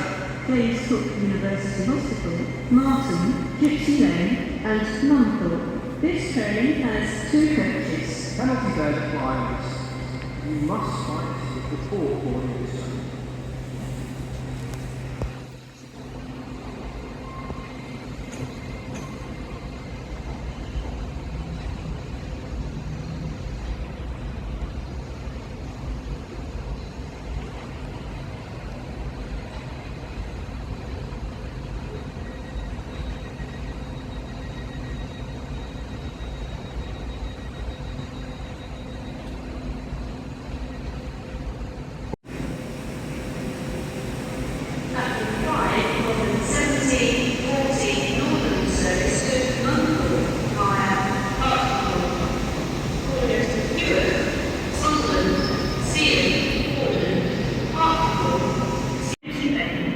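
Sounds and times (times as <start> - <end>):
faint high whine: 0.0 - 22.7, 42.3 - 59.7
train rumbling: 0.0 - 32.0, 40.8 - 59.9.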